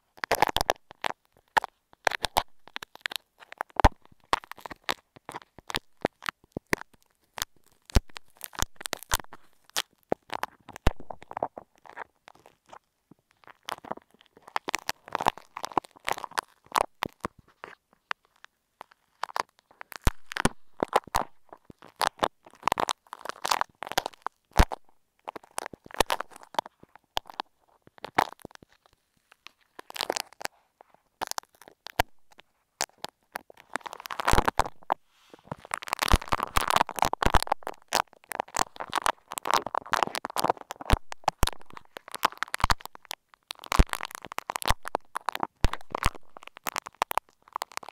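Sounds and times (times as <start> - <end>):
clay crackling and clicking: 0.0 - 47.9.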